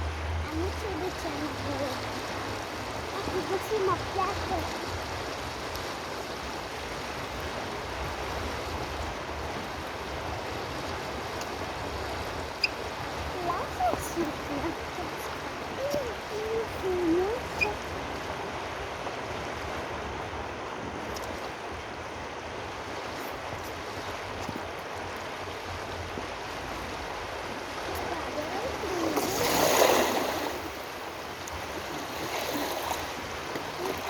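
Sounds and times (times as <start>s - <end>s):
flowing water rushing: 0.0s - 34.0s.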